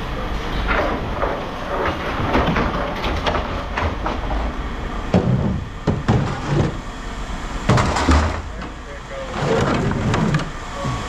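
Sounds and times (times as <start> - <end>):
scrap metal clanking: 0.2 - 6.8, 7.7 - 11.0
sharp knocks: 0.8 - 6.8, 7.7 - 8.8.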